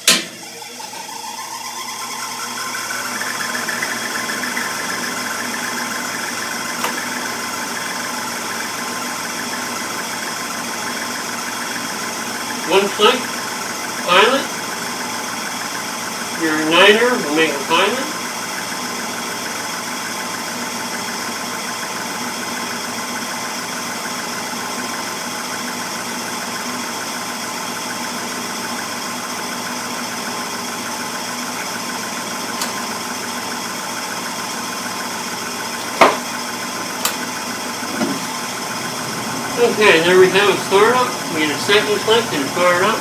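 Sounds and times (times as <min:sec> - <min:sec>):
furnace valve clicking: 0:00.0 - 0:00.4, 0:32.6 - 0:32.8, 0:37.0 - 0:37.2
gas furnace humming: 0:00.0 - 0:43.0.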